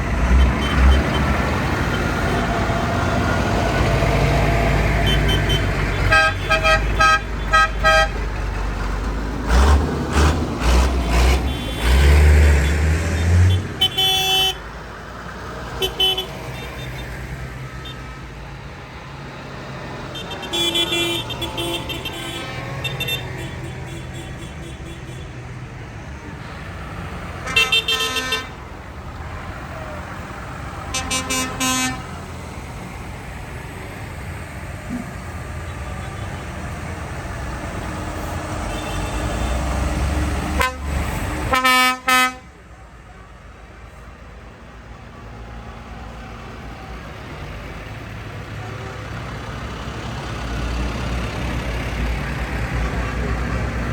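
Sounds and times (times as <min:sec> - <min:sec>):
tractor engines rumbling: 0:00.0 - 0:53.9
tractor horn toots: 0:05.0 - 0:08.2, 0:11.2 - 0:14.6, 0:15.8 - 0:17.0, 0:20.1 - 0:25.3, 0:27.4 - 0:28.6, 0:30.9 - 0:32.1, 0:38.6 - 0:39.6, 0:40.6 - 0:42.5.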